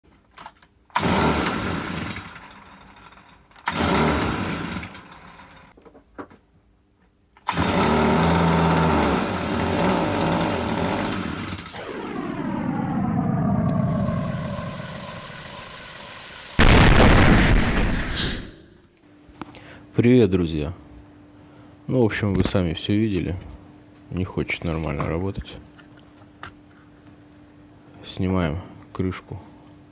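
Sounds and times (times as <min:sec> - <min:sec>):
small two-stroke engine sputtering: 0:01.0 - 0:05.7, 0:07.5 - 0:11.7
engine rough burst: 0:07.7 - 0:18.6.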